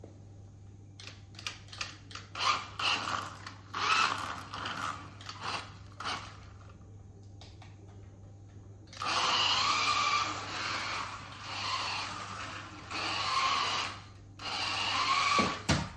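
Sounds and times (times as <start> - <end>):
electric motor and gears whining: 2.1 - 6.7, 8.9 - 15.9.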